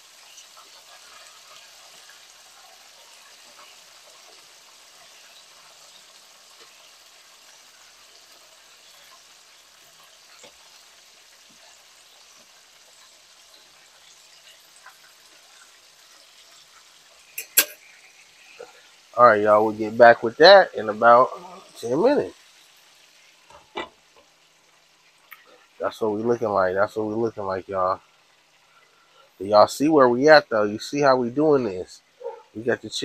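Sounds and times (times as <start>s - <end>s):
chicken frying in hot oil: 0.0s - 33.0s
small pops from oil: 25.2s - 25.5s.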